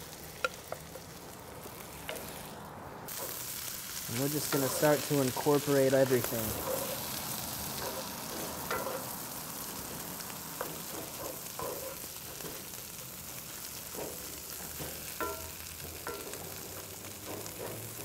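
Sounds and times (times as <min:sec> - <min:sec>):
rice sizzling in a skillet: 0:00.0 - 0:18.0
spatula scraping pan: 0:06.3 - 0:07.2.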